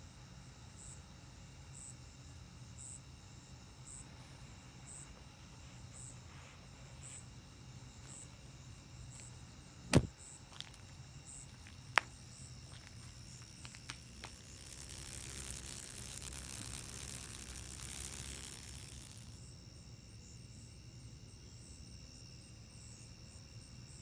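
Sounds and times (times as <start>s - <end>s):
insect chirping: 0.1s - 24.0s
sharp knock: 9.9s - 10.1s.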